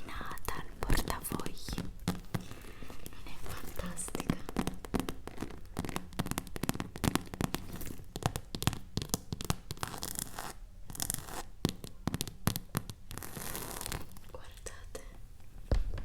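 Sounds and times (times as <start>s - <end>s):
scratchy rustles: 0.5s - 8.3s, 13.1s - 14.4s.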